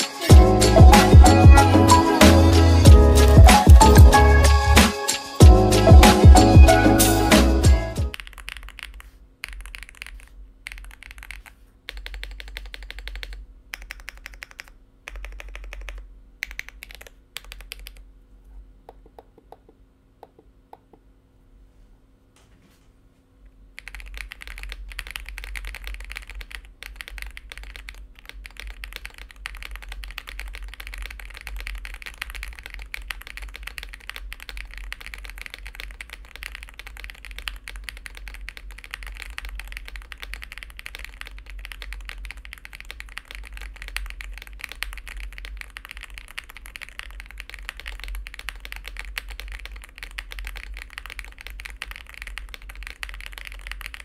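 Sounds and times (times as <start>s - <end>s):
fast typing on mechanical keyboard: 8.1s - 18.0s, 23.8s - 54.0s.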